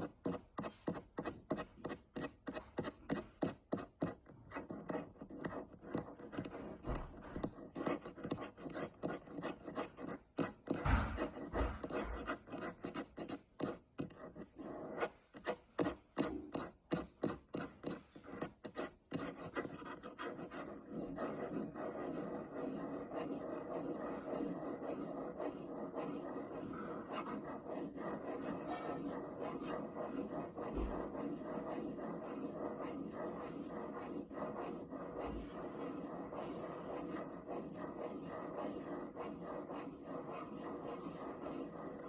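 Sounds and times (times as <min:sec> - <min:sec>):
fingernails scratching and rubbing: 0:00.0 - 0:42.0.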